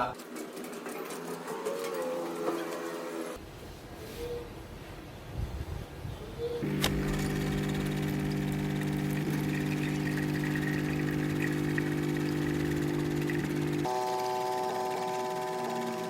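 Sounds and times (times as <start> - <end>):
motor humming: 6.6 - 13.9.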